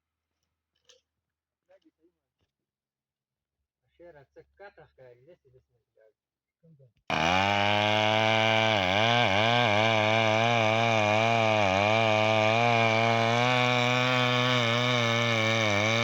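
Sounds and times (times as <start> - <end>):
chainsaw running at high revs: 7.1 - 16.0.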